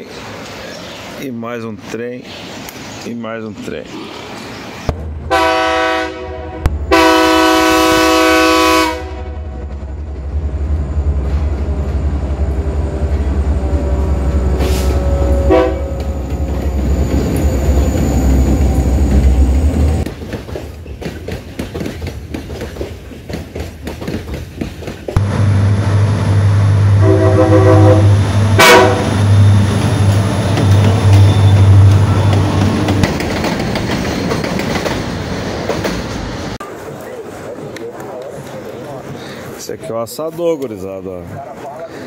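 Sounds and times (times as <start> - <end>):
diesel locomotive engines rumbling: 0.0 - 42.0
locomotive horn: 5.3 - 9.7, 13.9 - 16.3, 25.2 - 29.9
wagon wheels clicking on rail joints: 20.0 - 25.2.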